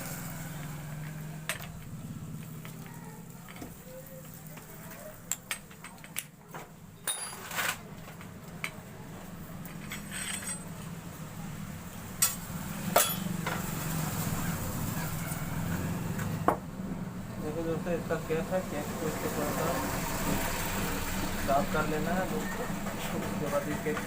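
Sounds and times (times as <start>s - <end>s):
metal parts and tools clinking: 5.1s - 6.4s, 7.0s - 8.8s, 9.6s - 10.8s, 12.2s - 13.3s.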